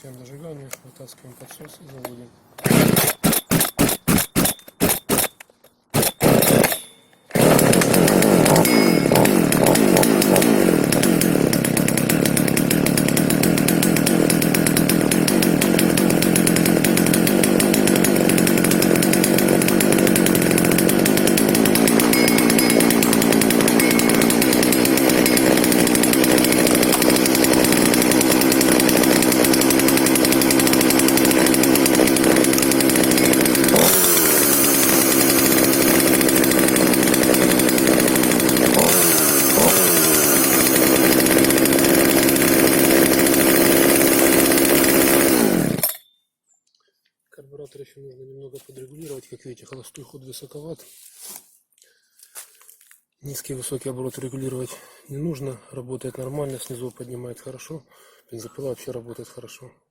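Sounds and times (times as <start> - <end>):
chainsaw starting and idling: 1.6 - 46.0.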